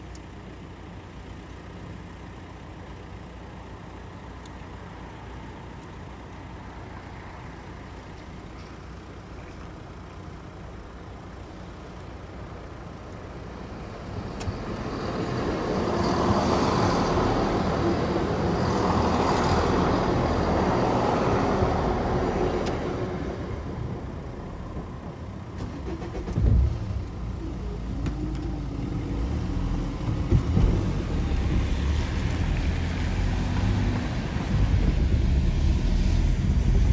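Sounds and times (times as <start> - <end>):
vehicle passing by: 25.8 - 36.9
loud thump: 26.3 - 27.4.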